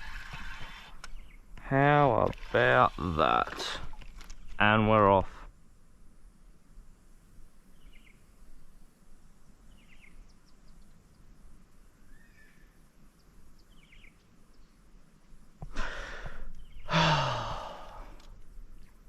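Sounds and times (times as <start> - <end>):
person sighing heavily: 15.6 - 18.3.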